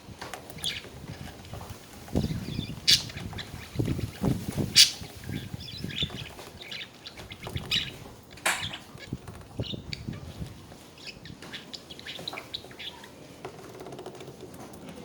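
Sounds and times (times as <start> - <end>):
budgerigars chirping: 0.6 - 13.2
soft knocks and rustles: 7.2 - 15.0.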